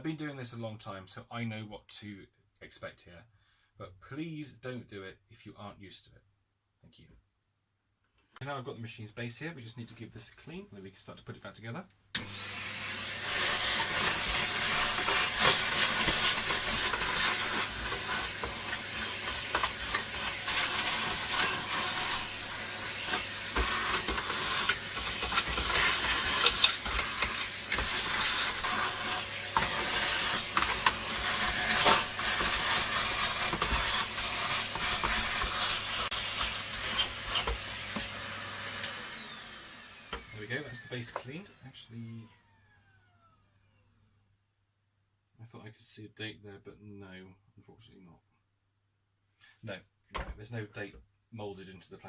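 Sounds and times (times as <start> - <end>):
scrubbing and scraping plastic: 13.2 - 38.2.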